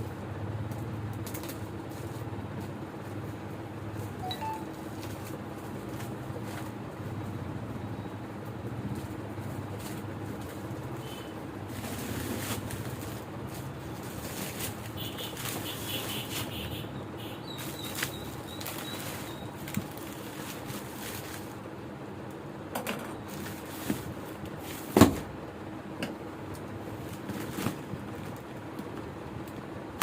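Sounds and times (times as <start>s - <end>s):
packaging rustling: 17.6s - 21.6s.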